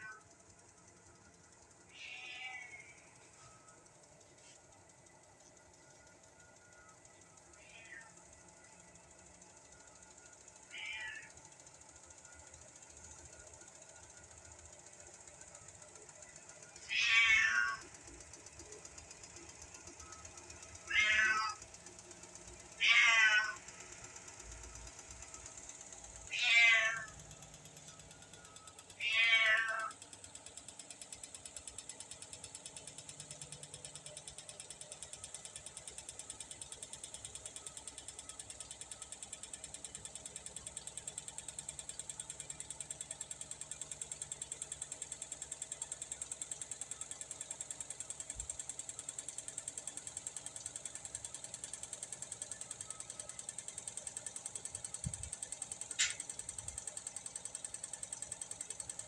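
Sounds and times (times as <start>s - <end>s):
machine spinning with rattle: 0.0s - 59.0s
cat meowing: 1.9s - 3.0s, 7.6s - 8.1s, 10.7s - 11.3s, 16.9s - 17.8s, 20.9s - 21.6s, 22.8s - 23.6s, 26.3s - 27.1s, 29.0s - 29.9s
sharp click: 55.9s - 56.4s.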